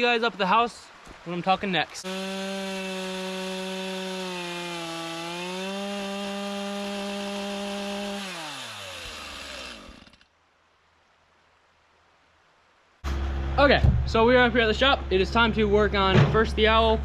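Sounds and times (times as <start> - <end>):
chainsaw cutting log: 2.0 - 10.3.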